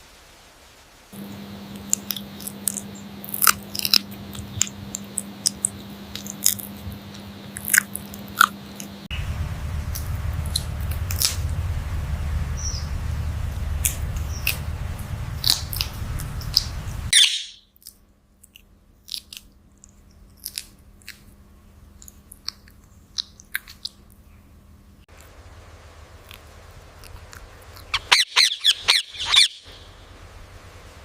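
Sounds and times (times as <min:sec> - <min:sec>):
parrot chewing clicks and crunches: 0:01.8 - 0:09.0
parrot high call: 0:17.1 - 0:17.6, 0:27.9 - 0:29.9.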